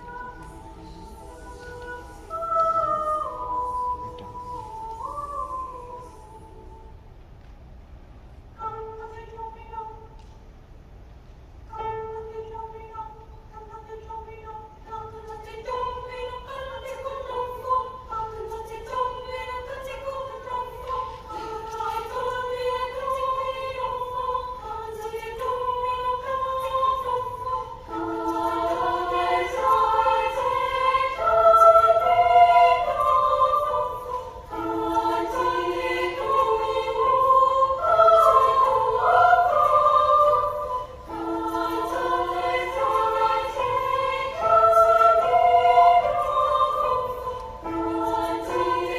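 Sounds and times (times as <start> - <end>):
children's choir singing: 0.0 - 6.7, 11.8 - 48.9.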